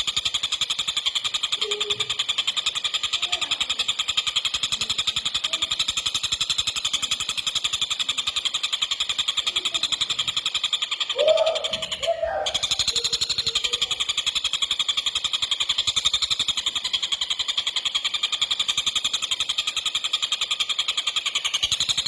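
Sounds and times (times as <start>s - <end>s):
kingfisher rapid chattering call: 0.0s - 22.0s.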